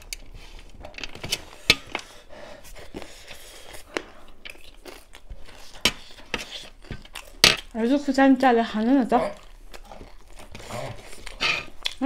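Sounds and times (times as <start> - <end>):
crunchy chewing of snack: 2.8 - 7.4, 9.2 - 12.0.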